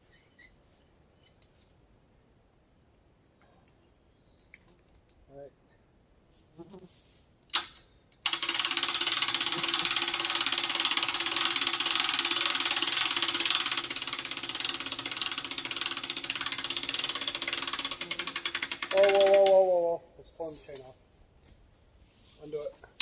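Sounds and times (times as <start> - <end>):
winch winding in cable: 8.2 - 19.6.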